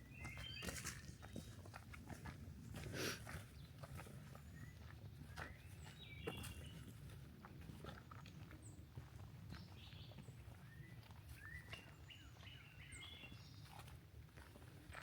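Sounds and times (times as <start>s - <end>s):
small songbirds chirping: 0.0s - 1.7s, 3.4s - 7.2s, 8.0s - 14.0s
footsteps on a trail: 0.0s - 15.0s.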